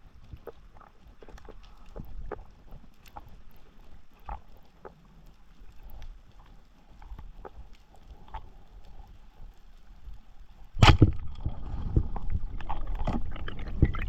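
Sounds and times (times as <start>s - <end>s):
water sloshing and rushing: 10.6s - 14.0s.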